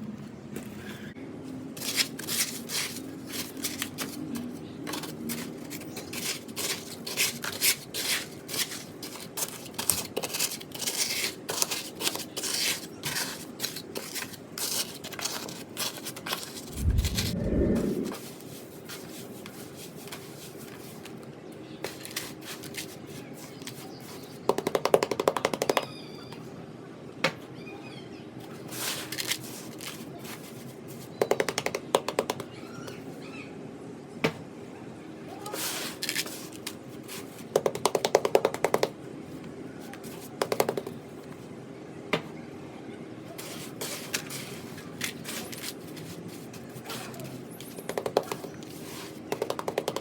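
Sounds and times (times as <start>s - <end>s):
rapid tapping on blocks: 49.3s - 50.0s.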